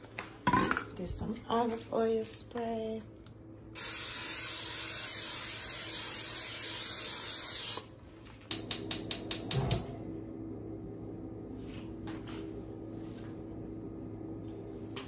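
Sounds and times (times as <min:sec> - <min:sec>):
aerosol spray hissing: 0:03.8 - 0:07.9.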